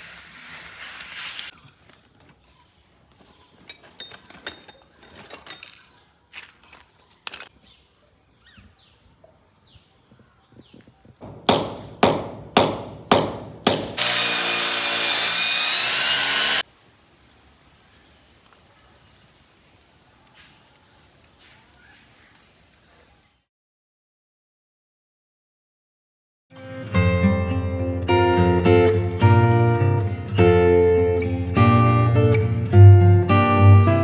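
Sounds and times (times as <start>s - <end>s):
power tool sharp strokes: 13.1s - 16.6s
power tool running: 13.6s - 16.6s
faint clicks: 16.7s - 23.4s.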